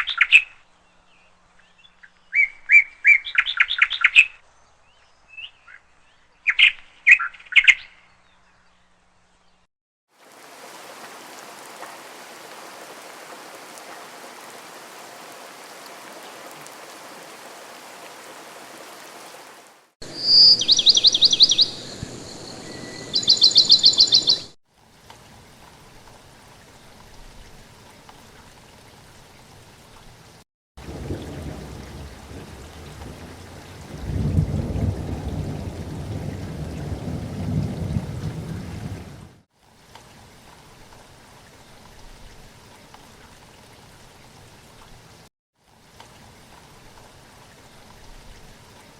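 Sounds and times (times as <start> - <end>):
rain-like hiss: 10.1 - 48.9
bird trills: 20.1 - 24.5.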